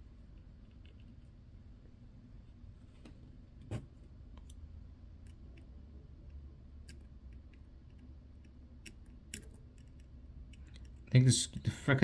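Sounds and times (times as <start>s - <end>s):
low steady hum: 0.0s - 12.0s
small tools clicking on watch: 5.2s - 11.0s.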